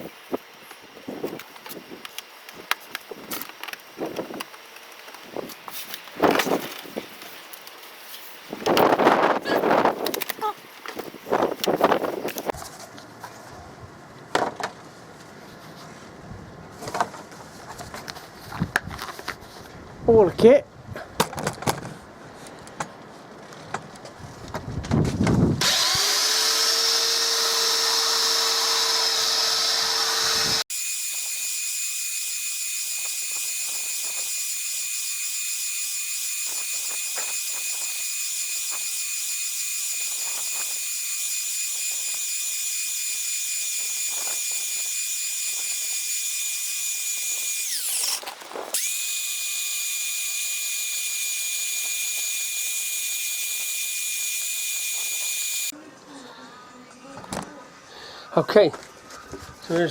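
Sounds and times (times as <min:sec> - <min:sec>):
power tool whining: 0:00.0 - 0:12.6, 0:25.6 - 0:55.7.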